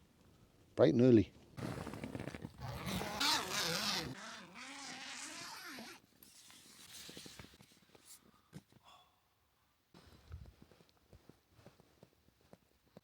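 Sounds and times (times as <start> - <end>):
zip being pulled: 1.6 - 7.4.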